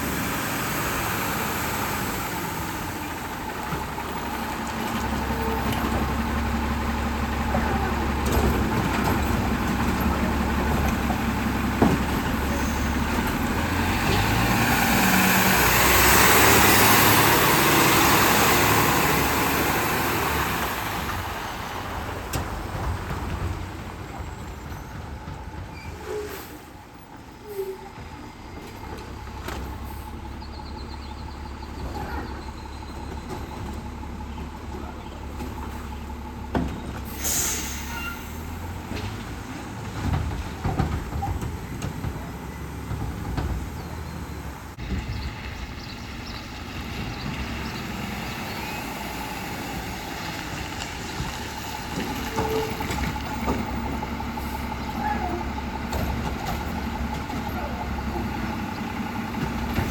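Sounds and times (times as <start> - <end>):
garbage truck running: 0.0 - 59.9
knocks and clunks: 3.0 - 16.8, 38.6 - 48.2, 49.7 - 59.9
air brake hissing: 37.0 - 38.6.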